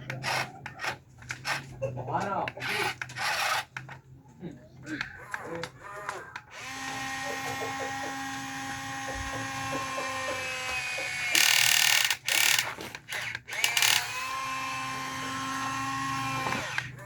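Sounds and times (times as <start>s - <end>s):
small motor whining: 2.6s - 4.0s, 6.4s - 17.0s.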